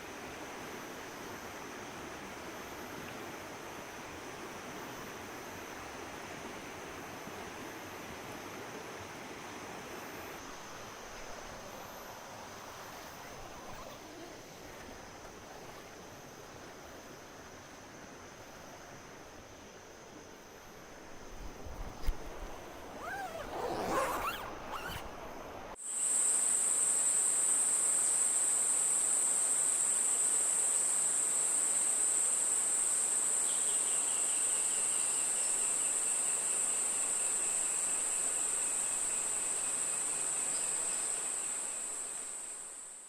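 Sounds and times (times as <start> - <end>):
sliding animal call: 23.0 - 25.1.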